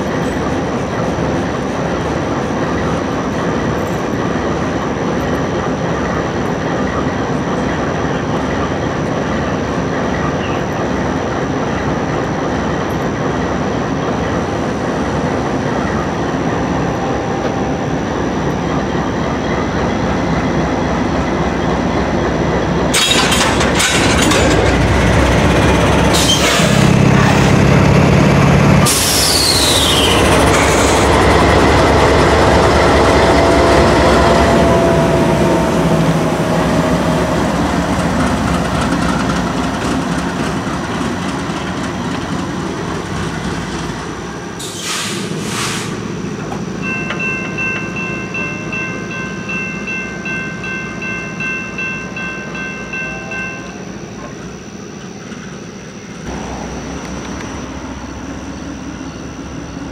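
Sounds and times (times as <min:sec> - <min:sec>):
freight train rumble: 0:00.0 - 0:59.9
falling squeal: 0:26.1 - 0:26.9, 0:28.9 - 0:31.1.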